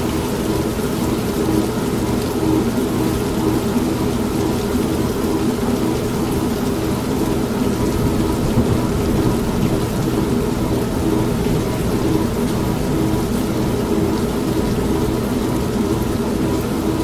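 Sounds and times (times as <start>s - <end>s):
steady rain: 0.0s - 17.0s
washing machine motor humming: 0.0s - 17.0s
thunder rumbling: 7.5s - 15.4s.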